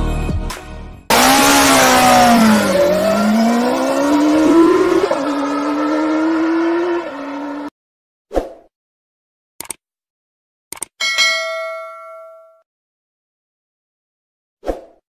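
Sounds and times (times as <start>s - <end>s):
car engine revving: 1.1s - 7.7s.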